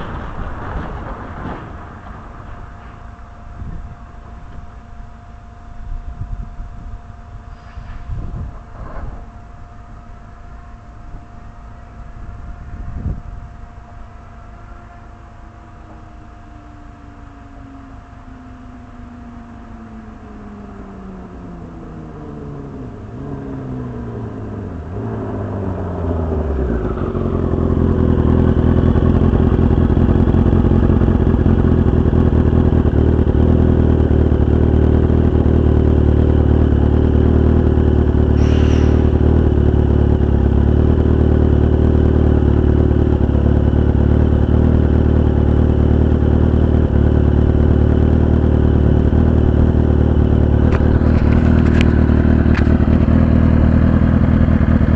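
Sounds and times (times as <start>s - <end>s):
brief high squeak: 7.5s - 8.1s, 38.4s - 39.2s
motorcycle engine running: 14.9s - 54.9s.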